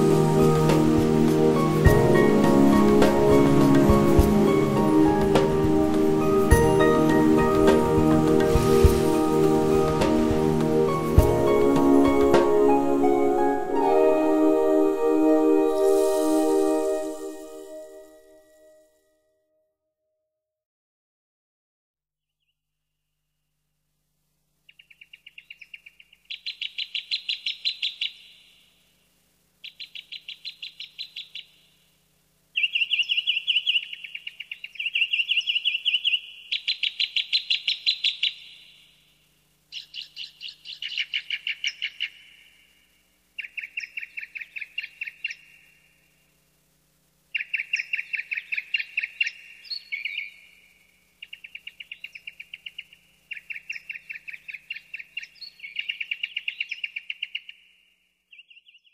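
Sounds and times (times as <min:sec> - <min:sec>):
songbird singing rapid trills: 0:29.6 - 0:31.6, 0:32.6 - 0:38.9, 0:39.7 - 0:42.6, 0:47.3 - 0:57.6.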